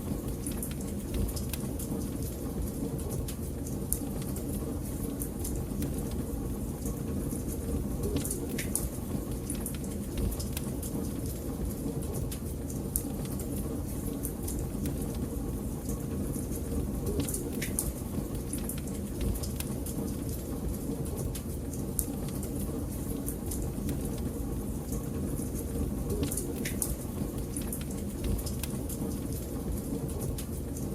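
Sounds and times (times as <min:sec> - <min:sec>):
fire crackling with snaps: 0:00.0 - 0:30.9
low rumble of fire: 0:00.0 - 0:30.9.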